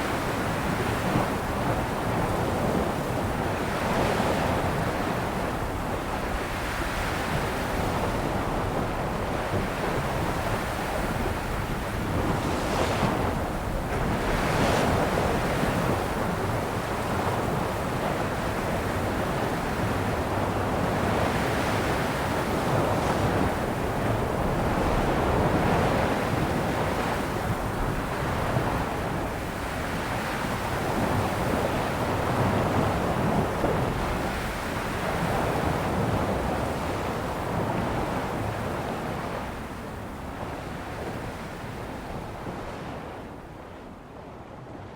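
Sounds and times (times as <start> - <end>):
wind buffeting microphone: 0.0 - 44.9
sea waves breaking: 9.0 - 43.1.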